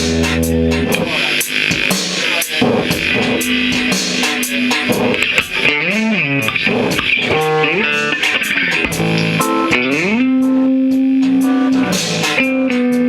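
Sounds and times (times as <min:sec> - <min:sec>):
drums: 0:00.0 - 0:13.0
electric guitar lead: 0:00.7 - 0:13.0.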